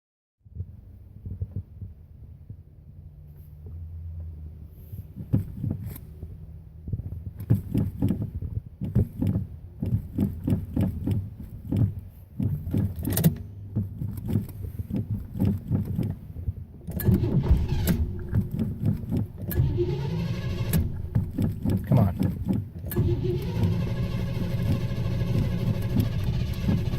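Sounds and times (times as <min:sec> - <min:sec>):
car engine cranking: 0:06.9 - 0:26.9.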